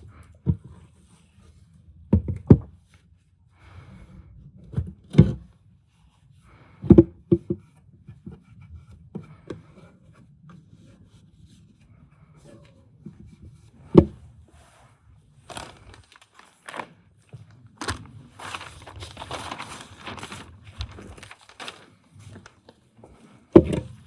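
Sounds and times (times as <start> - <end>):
rubbing and scraping: 17.8 - 24.0.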